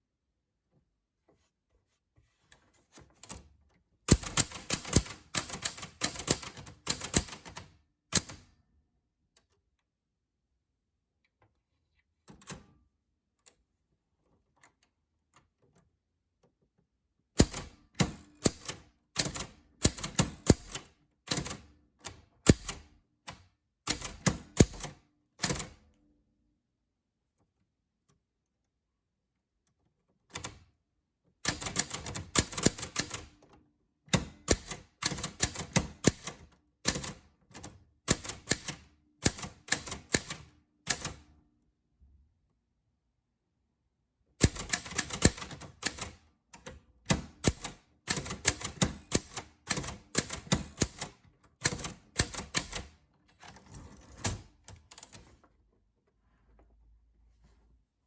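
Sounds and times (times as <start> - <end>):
typewriter keys striking: 4.1 - 8.4, 17.4 - 22.9, 31.5 - 33.3, 34.2 - 41.2, 44.4 - 46.2, 47.1 - 52.9.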